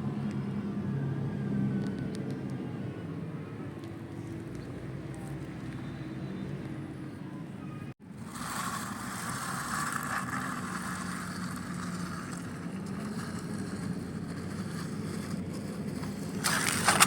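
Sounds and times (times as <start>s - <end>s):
motor humming: 8.1s - 17.0s.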